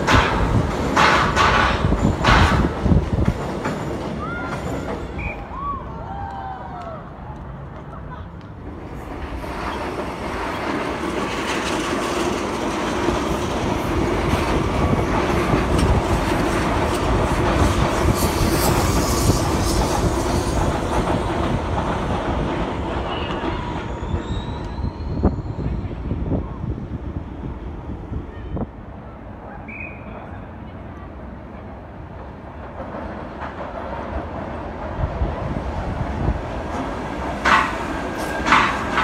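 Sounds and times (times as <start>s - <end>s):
wheels clicking over rail joints: 0.0s - 5.3s, 36.2s - 39.0s
electric train rumbling: 0.0s - 39.0s.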